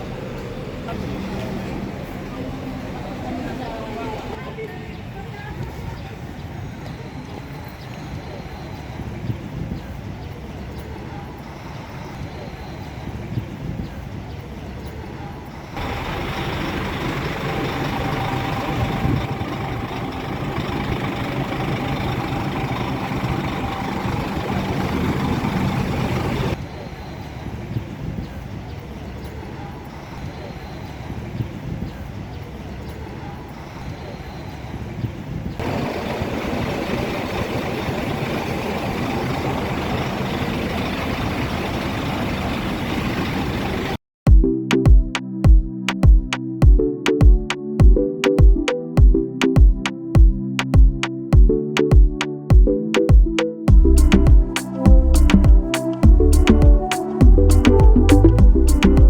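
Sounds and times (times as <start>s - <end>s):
coach engine drone: 0.0s - 4.4s, 15.8s - 26.6s, 35.6s - 44.0s, 53.7s - 59.0s
road noise: 0.0s - 44.0s, 53.7s - 59.0s.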